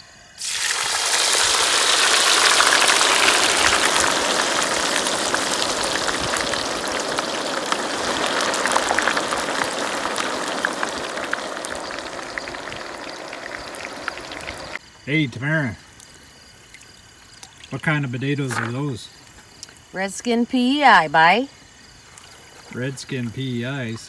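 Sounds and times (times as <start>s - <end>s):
potatoes sizzling in hot oil: 0.3s - 14.8s.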